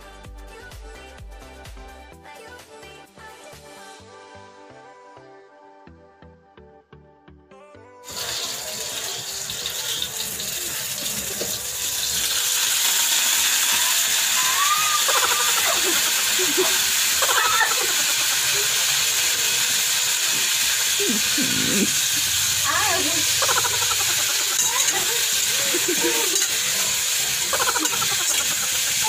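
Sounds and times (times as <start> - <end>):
onion and garlic sizzling in oil: 8.0 - 29.0.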